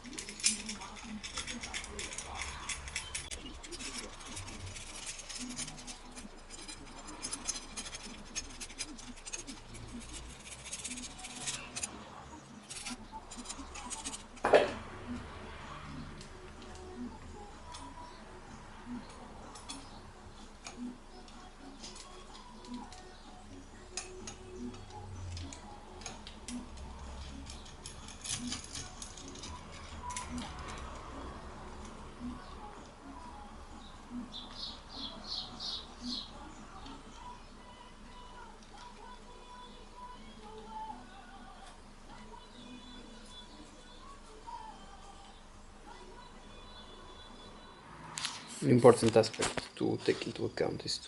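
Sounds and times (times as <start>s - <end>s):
metal parts and tools clicking: 0.0s - 11.9s, 12.6s - 14.7s, 20.6s - 32.0s.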